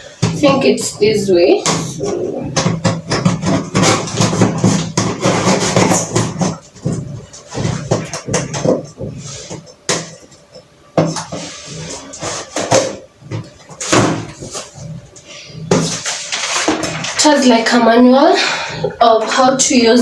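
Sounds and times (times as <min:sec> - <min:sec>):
plastic packaging handled: 0:11.0 - 0:17.5.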